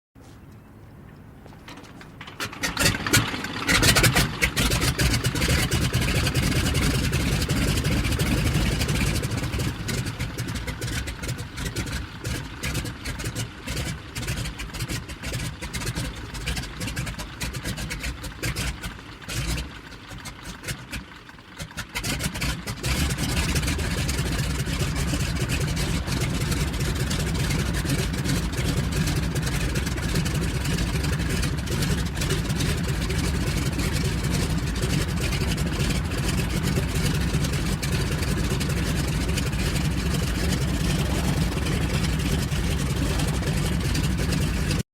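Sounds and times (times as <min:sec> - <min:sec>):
plane piston engine running: 0:23.1 - 0:44.8.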